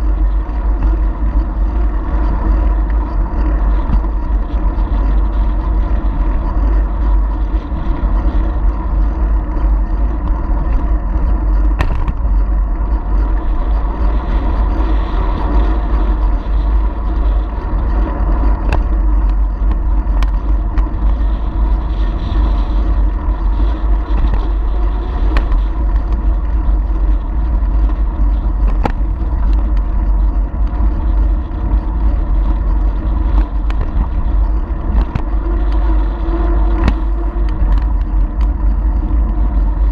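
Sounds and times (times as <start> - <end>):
bicycle riding noise: 0.0 - 39.9
wind rumble on microphone: 0.0 - 39.9.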